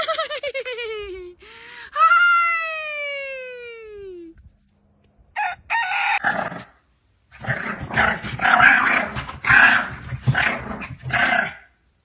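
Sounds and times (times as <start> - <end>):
dog growling: 7.3 - 11.7.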